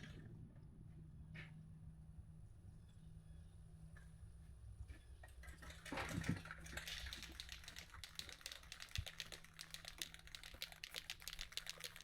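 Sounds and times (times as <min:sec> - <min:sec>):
spray can ball rattling: 0:06.8 - 0:12.0.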